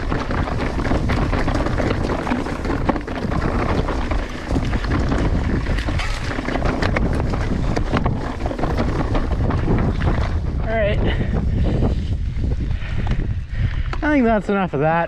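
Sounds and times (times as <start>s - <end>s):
bike clicks and knocks: 0.0s - 10.6s
wind buffeting microphone: 0.0s - 15.0s.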